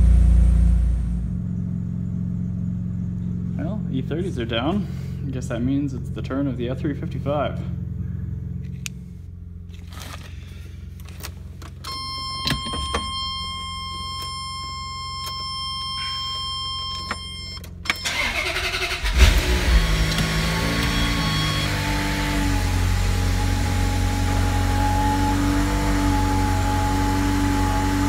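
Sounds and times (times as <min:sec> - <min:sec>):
car engine revving and idling: 0:00.0 - 0:11.8, 0:15.9 - 0:28.0
electronic warning tone: 0:11.9 - 0:18.4, 0:20.1 - 0:22.9
starter motor cranking: 0:17.9 - 0:21.8.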